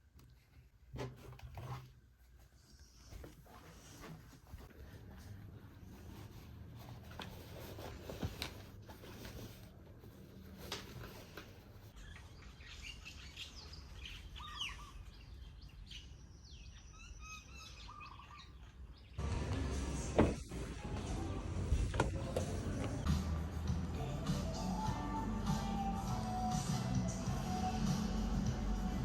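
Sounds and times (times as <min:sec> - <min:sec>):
birds chirping faintly: 0:11.9 - 0:19.2.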